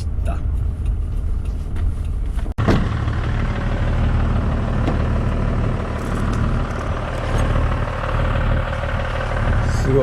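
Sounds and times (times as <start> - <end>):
diesel engine idling: 2.6 - 10.0.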